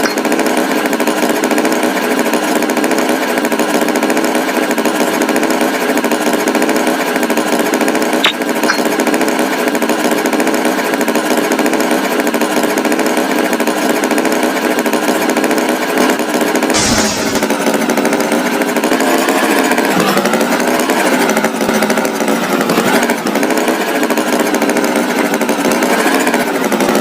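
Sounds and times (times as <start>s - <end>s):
motor with mechanical rattle: 0.0s - 27.0s.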